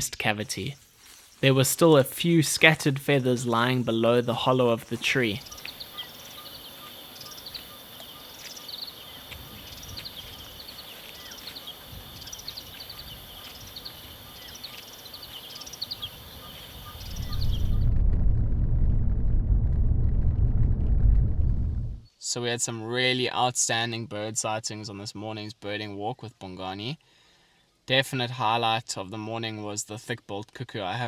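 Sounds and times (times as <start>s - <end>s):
high insect buzz: 5.0s - 17.7s
short high bird calls: 5.0s - 17.8s
loud steady low rumble: 17.2s - 22.0s.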